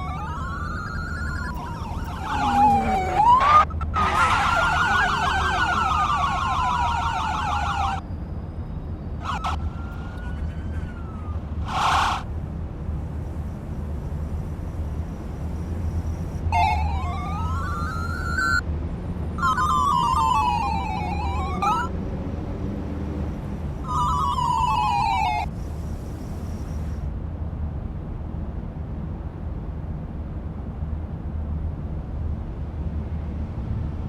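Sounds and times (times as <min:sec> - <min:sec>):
police siren wailing and yelping: 0:00.0 - 0:08.0, 0:09.2 - 0:12.2, 0:16.5 - 0:18.6, 0:19.4 - 0:22.0, 0:23.8 - 0:25.6.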